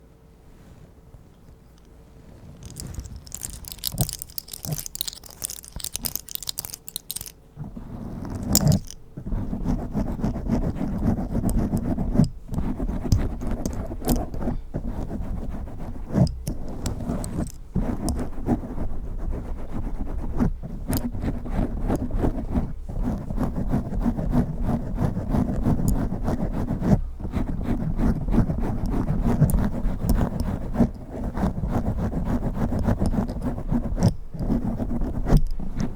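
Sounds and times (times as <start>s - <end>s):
close-up rubbing: 2.2s - 35.9s
fingernails scratching microphone: 2.3s - 35.9s.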